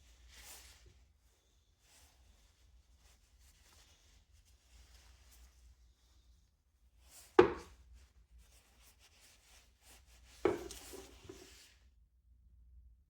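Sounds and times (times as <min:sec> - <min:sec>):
hard objects knocking on surface: 0:07.4 - 0:07.7, 0:10.5 - 0:11.0
light rattling and scraping: 0:08.6 - 0:11.7.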